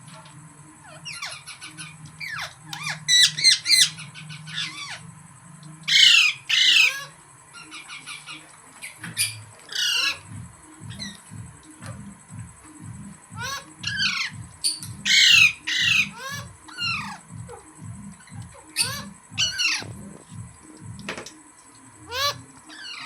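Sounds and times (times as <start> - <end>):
parrot squawking and chattering: 0.8 - 5.1, 5.9 - 10.3, 10.9 - 12.0, 13.4 - 20.3, 22.0 - 23.0.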